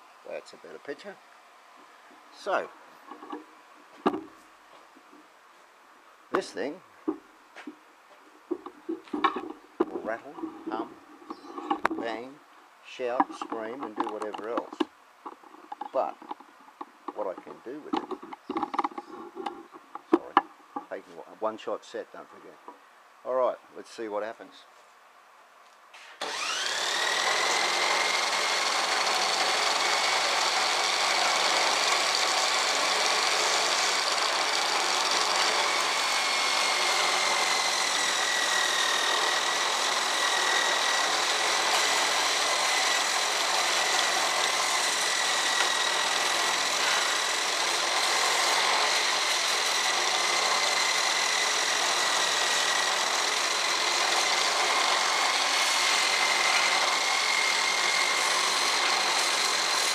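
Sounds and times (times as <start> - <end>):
electric drill whining: 26.2 - 59.9.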